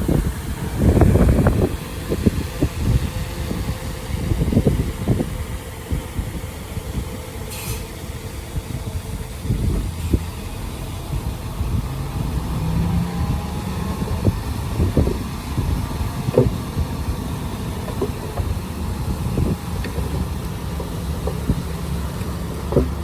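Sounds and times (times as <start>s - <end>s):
heavy diesel engine running: 0.0s - 23.0s
metal knocks and clanks: 19.3s - 23.0s.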